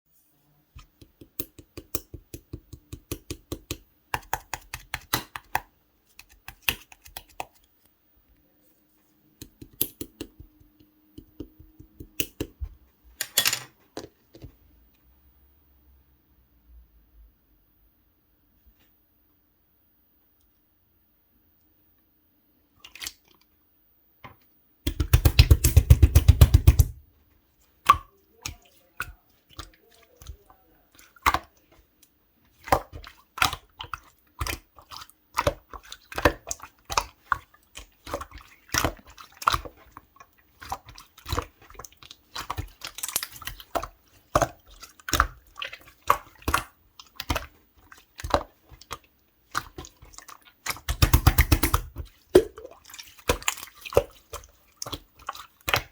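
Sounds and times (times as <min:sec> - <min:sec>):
slime squishing by hand: 0:00.8 - 0:07.6, 0:24.8 - 0:27.0, 0:27.6 - 0:55.9
wet sticky pops and clicks: 0:01.0 - 0:07.6, 0:09.4 - 0:12.6, 0:24.8 - 0:27.0, 0:50.6 - 0:52.7.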